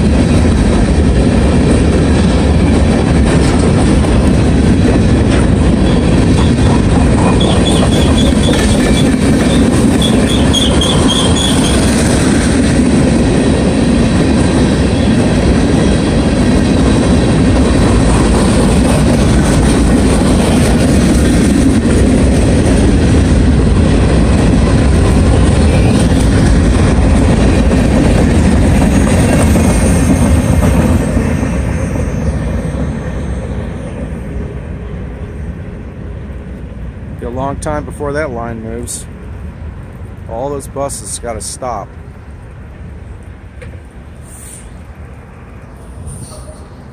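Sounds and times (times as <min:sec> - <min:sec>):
train wheels rumbling on rail: 0:00.0 - 0:46.9
wheel squeals: 0:05.8 - 0:12.0.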